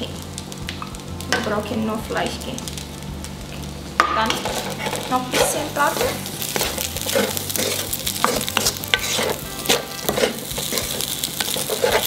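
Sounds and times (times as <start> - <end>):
fried rice sizzling in a pan: 0.0 - 12.0
utensil scraping a pan: 4.2 - 12.0.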